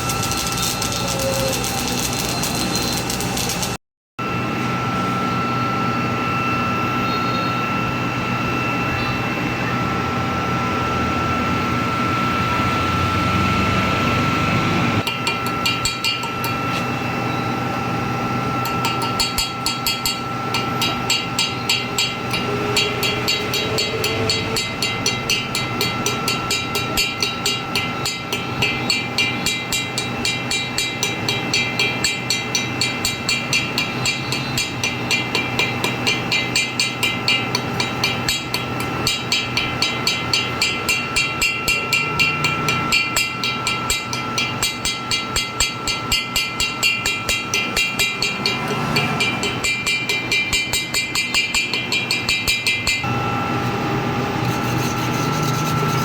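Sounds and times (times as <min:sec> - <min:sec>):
welding arc crackling: 0:00.0 - 0:03.8
welder humming: 0:00.0 - 0:56.0.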